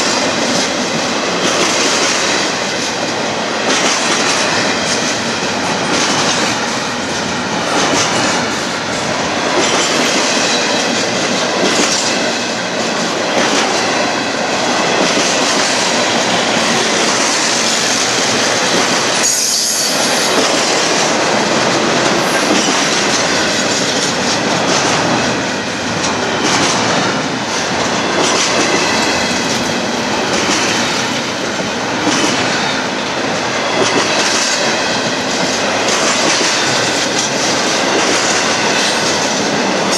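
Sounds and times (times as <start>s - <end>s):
train wheels clattering on rails: 0.0s - 39.9s
high wheel squeal: 19.2s - 20.4s.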